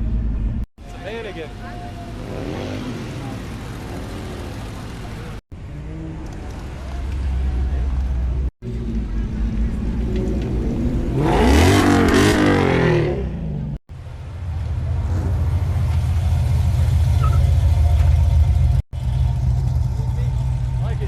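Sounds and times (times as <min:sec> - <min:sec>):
deep engine rumble: 0:00.0 - 0:21.0
car engine revving: 0:01.8 - 0:13.7.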